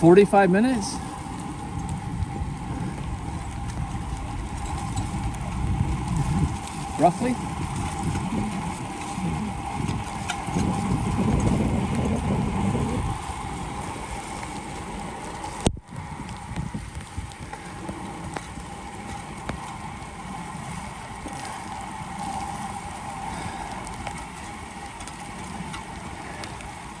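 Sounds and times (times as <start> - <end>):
bicycle tyres on wet pavement: 0.0 - 27.0
rain: 0.0 - 27.0
wind rumbling on microphone: 0.0 - 27.0.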